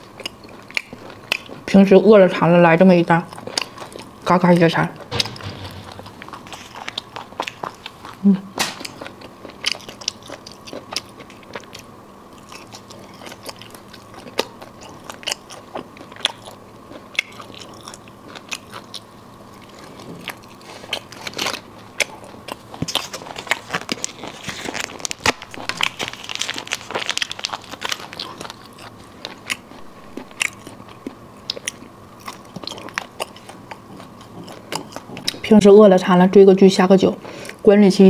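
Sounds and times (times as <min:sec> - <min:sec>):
crunchy chewing: 0:00.0 - 0:01.8, 0:03.0 - 0:04.3, 0:05.7 - 0:35.5
dense crackling: 0:05.1 - 0:07.0.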